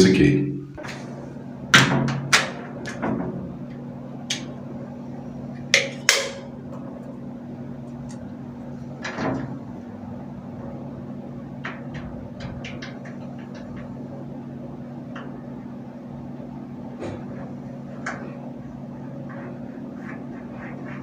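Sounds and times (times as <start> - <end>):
steady low hum: 0.0 - 21.0
hardware clicks and knocks: 11.6 - 14.0.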